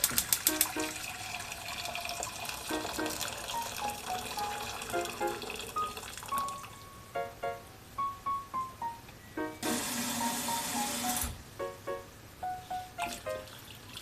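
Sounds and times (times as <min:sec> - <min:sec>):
quick clicks: 0:00.0 - 0:00.9
tap water running into sink: 0:00.0 - 0:06.5
light background music: 0:00.5 - 0:01.2, 0:02.7 - 0:13.7.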